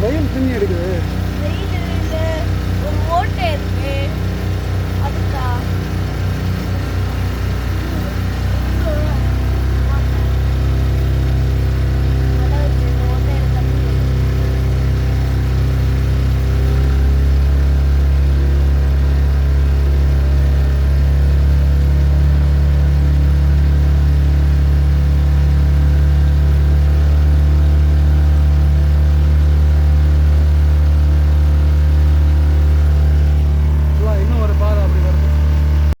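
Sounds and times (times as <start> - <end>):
motorboat engine droning: 0.0 - 36.0.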